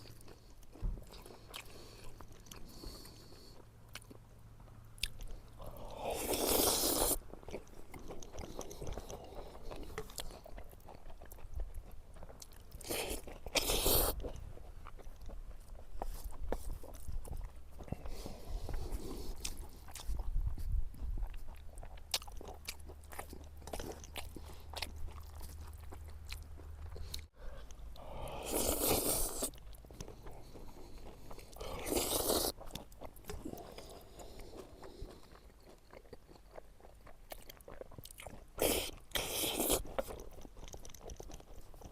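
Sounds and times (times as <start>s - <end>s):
person chewing and biting: 0.0s - 4.3s, 4.9s - 41.9s.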